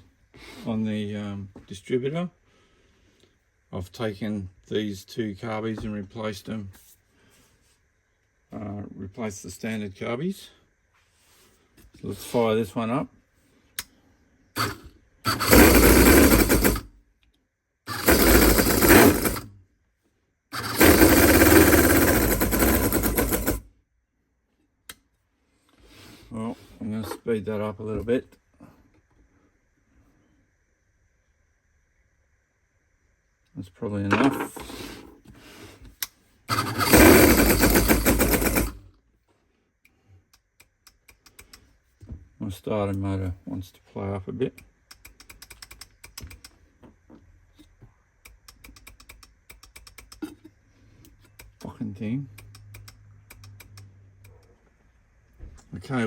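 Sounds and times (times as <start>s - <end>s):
model engine electric starter cranking: 14.6s - 16.8s, 17.9s - 19.5s, 20.6s - 23.6s, 36.5s - 38.8s.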